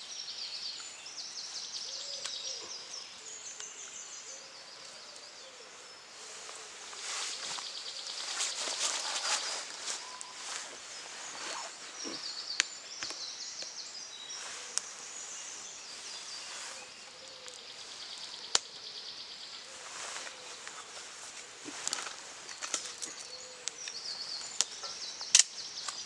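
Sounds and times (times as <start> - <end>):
faint birdsong: 0.0 - 26.0
sharp snaps: 18.3 - 18.8, 21.8 - 26.0.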